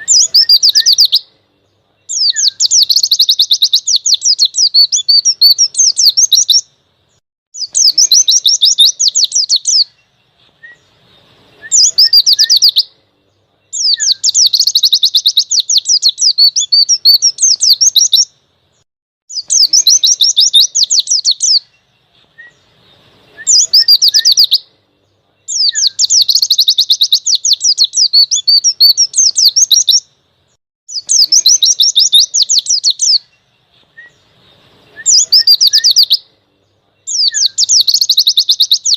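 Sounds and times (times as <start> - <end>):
bird fast high trilling: 0.0 - 1.3, 7.6 - 9.9, 19.3 - 21.7, 23.4 - 24.7, 30.9 - 33.3, 35.0 - 36.2
soft bird chirps: 0.0 - 38.9.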